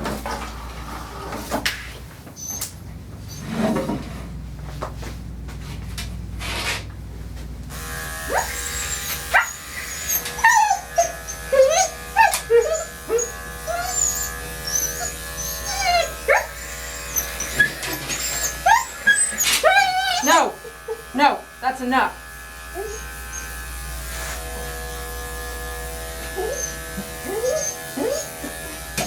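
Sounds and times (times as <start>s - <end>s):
dog whining and yelping: 2.3s - 2.7s, 8.3s - 21.1s, 22.7s - 23.6s, 26.2s - 28.8s
electric clippers humming: 7.7s - 29.0s.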